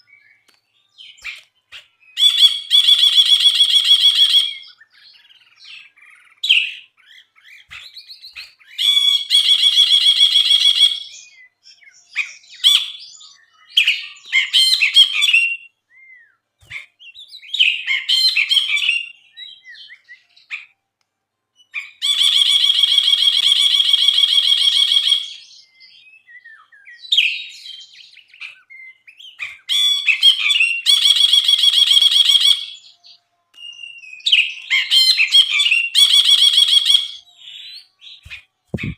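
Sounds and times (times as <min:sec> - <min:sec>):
bird singing chattering phrases: 0:36.9 - 0:38.9.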